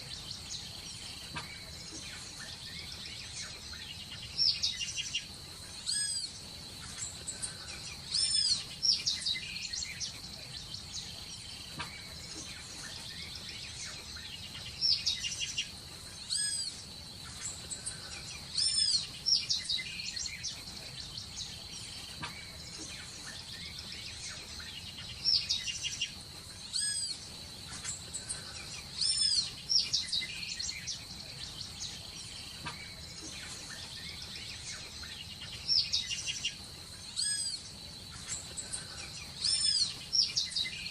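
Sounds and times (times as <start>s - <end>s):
birds chirping: 0.0s - 40.9s
insect drone: 0.0s - 40.9s.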